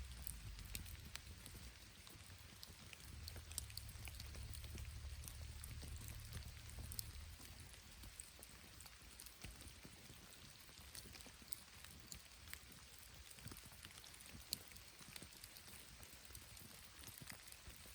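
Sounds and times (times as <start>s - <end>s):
bamboo fire crackling: 0.0s - 17.9s
faint rain hiss: 0.0s - 17.9s
low rumble: 3.1s - 7.6s.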